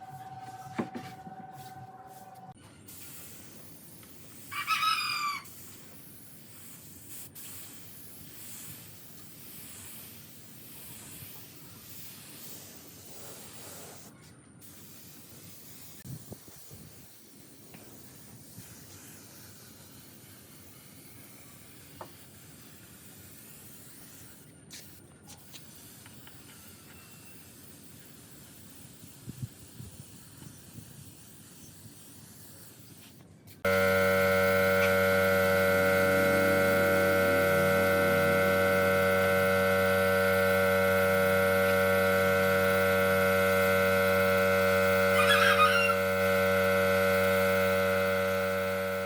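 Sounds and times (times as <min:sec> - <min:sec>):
loud animal call: 0:45.1 - 0:46.2.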